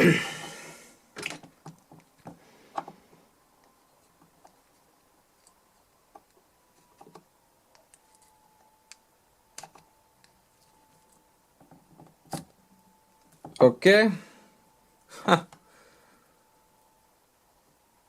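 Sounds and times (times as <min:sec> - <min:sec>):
faint steady tone: 0:00.0 - 0:01.2, 0:02.3 - 0:18.0.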